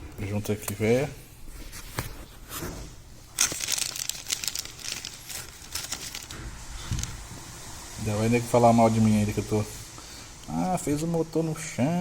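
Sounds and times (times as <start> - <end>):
packaging crinkling and tearing: 3.3 - 7.2.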